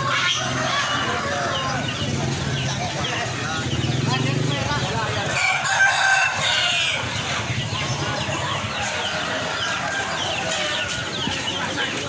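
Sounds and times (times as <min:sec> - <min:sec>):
birds chirping: 0:00.0 - 0:12.0
chickens clucking: 0:00.0 - 0:12.0
crowd murmur: 0:00.0 - 0:12.0
rooster crowing: 0:05.3 - 0:07.1.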